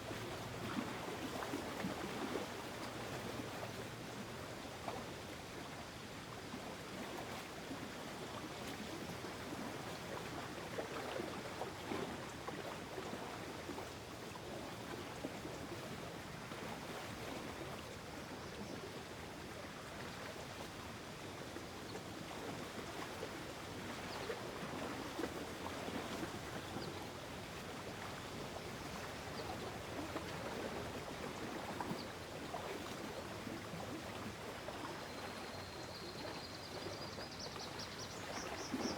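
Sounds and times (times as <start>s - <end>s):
water lapping and flowing: 0.0s - 38.9s.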